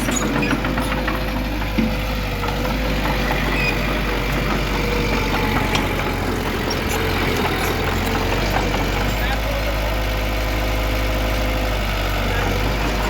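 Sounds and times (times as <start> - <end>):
diesel engine running at low revs: 0.0 - 13.0.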